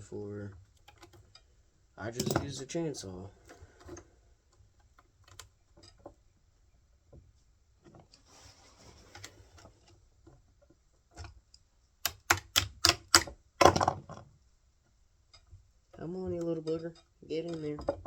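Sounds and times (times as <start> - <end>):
metal parts handled by hand: 2.1 - 2.8
sharp metallic clicks: 12.0 - 13.8.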